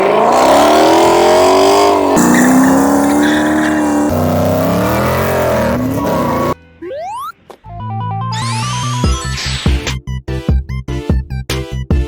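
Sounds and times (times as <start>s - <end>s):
car engines revving: 0.0s - 6.6s.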